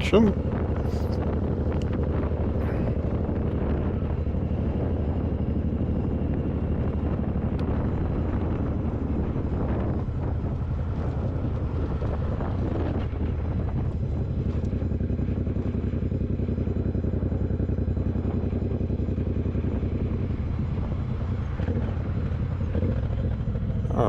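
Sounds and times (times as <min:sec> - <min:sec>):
motorcycle engine running: 0:00.0 - 0:24.0
wind buffeting microphone: 0:00.0 - 0:24.0.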